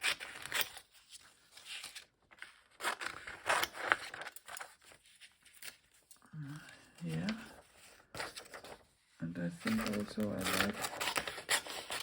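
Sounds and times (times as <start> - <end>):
paper pages rustling: 0.0 - 12.0
scissors snipping paper: 9.6 - 12.0.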